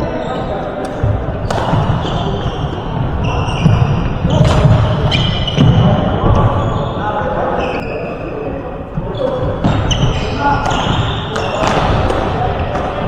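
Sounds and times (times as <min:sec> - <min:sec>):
shoes squeaking on floor: 0:00.0 - 0:13.0
racket striking shuttlecock: 0:00.6 - 0:05.8, 0:09.3 - 0:13.0.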